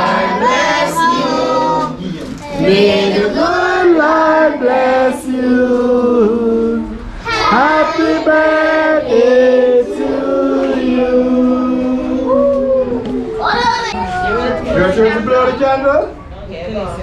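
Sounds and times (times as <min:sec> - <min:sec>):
group singing with children: 0:00.0 - 0:13.2.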